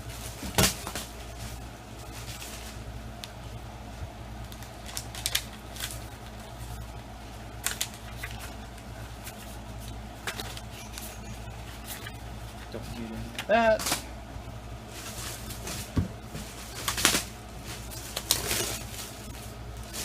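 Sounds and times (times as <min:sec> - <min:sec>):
steady low hum: 0:00.0 - 0:20.0
packaging clicks and rustles: 0:04.4 - 0:06.6, 0:16.6 - 0:20.0.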